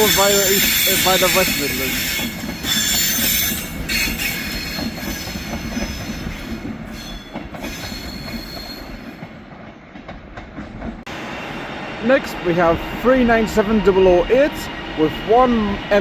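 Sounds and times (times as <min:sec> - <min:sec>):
train wheels squealing: 0:00.0 - 0:09.2
train rolling rumble: 0:00.0 - 0:16.0.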